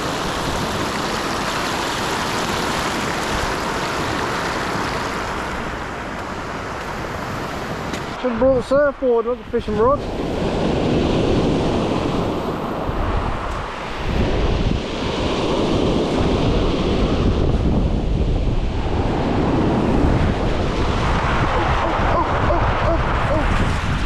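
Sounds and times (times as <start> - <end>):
surf breaking on beach: 0.0 - 24.0
wind buffeting microphone: 0.0 - 24.0.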